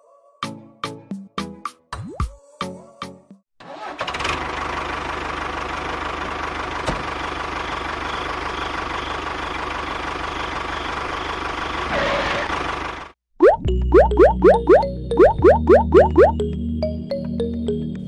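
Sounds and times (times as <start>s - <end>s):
engine idling: 4.2s - 11.9s, 12.5s - 13.1s
bouncy music with boing notes: 13.4s - 18.0s.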